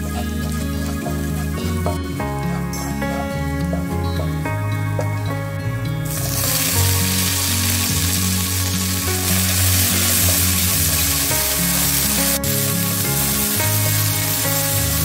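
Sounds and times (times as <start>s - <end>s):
vegetables sizzling in hot oil: 6.0s - 15.0s.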